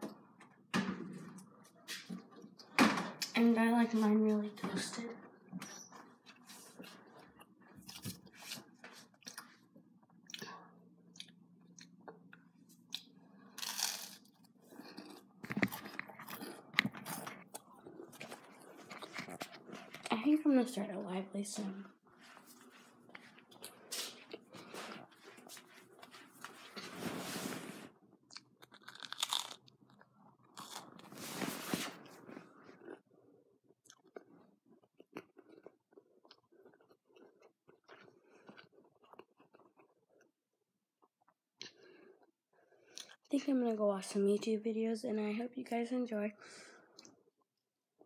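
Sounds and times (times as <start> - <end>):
person chewing crunchy food: 11.1 - 20.1, 28.2 - 40.4.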